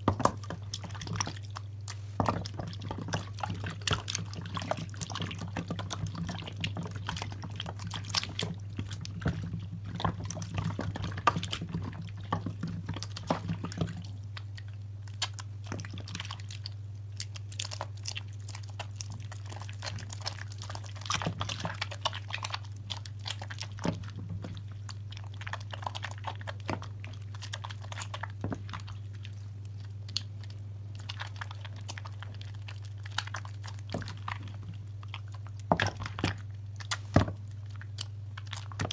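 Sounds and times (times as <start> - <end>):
steady low hum: 0.0 - 17.2
soap lather squishing and crackling: 0.0 - 38.9.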